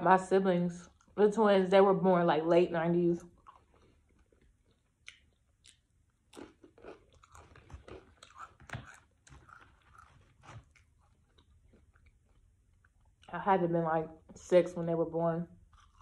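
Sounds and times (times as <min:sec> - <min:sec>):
crunching and chewing chips: 0:03.2 - 0:13.4, 0:15.6 - 0:16.0.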